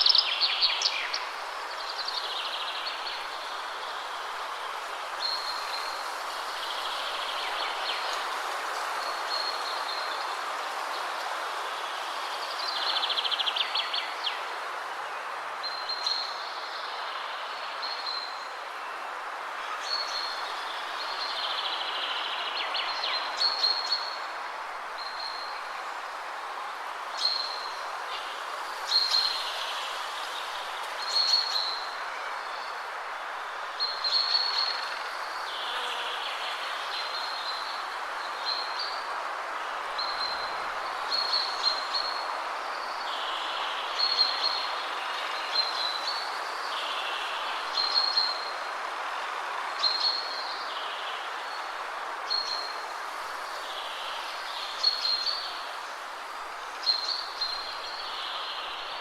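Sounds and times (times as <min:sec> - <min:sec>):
songbird singing: 0:00.0 - 0:24.4, 0:27.1 - 0:32.9, 0:33.7 - 0:39.2, 0:39.8 - 0:48.7, 0:49.5 - 0:59.0
wind rushing through trees: 0:00.0 - 0:59.0.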